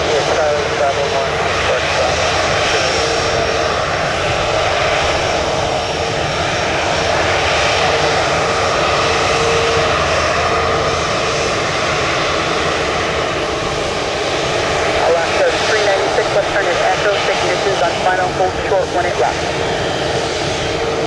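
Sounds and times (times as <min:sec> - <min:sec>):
jet engines running: 0:00.0 - 0:21.0.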